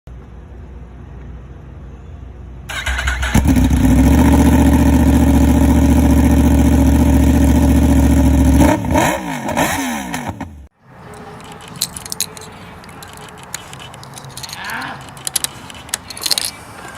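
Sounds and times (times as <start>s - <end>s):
motorcycle engine idling: 2.7s - 8.6s
engine revving: 2.7s - 10.7s.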